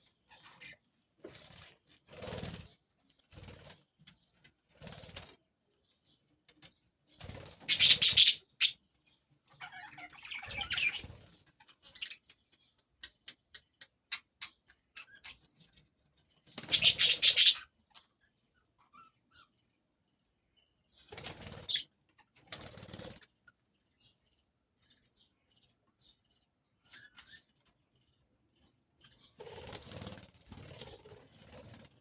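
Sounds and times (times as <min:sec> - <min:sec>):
birds scuffling: 0:29.4 - 0:32.0.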